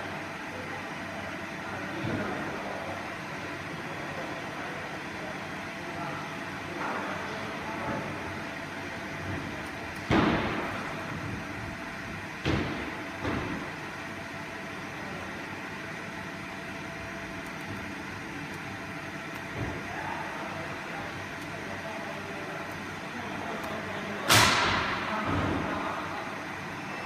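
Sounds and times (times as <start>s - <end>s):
machine hum: 5.5s - 27.0s.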